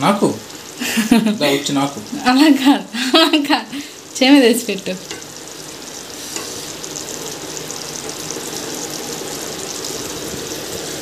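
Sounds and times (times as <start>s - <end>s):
curry sizzling in a pan: 0.0s - 11.0s
spatula clack: 5.0s - 5.4s.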